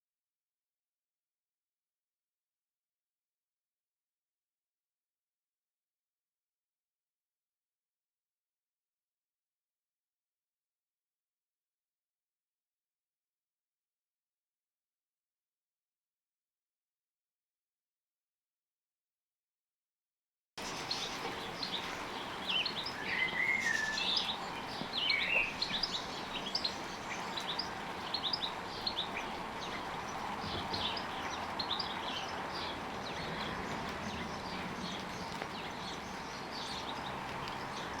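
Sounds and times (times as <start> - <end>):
background noise: 20.6 - 38.0
small birds chirping: 20.6 - 38.0.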